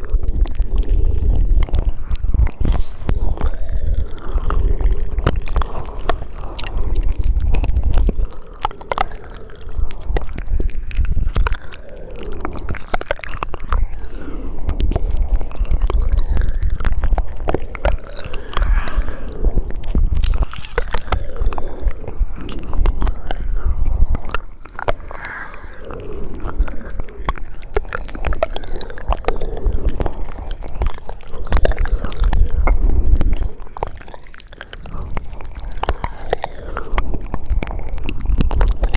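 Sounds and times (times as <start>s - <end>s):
saliva sounds: 0.0s - 38.9s
tongue clicks: 0.0s - 38.9s
wet lip smacks: 0.0s - 38.9s.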